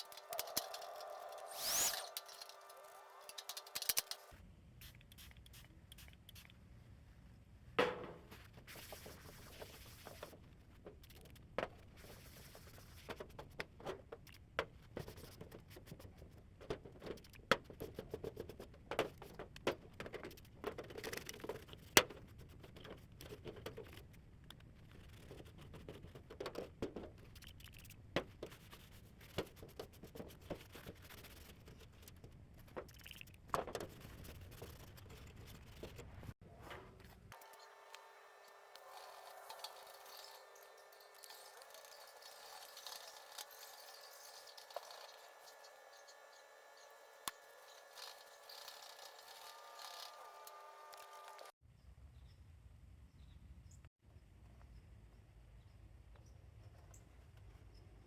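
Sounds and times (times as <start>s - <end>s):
plastic parts scraping: 0.0s - 4.3s, 38.8s - 51.5s
plastic parts clicking and tapping: 2.1s - 4.3s.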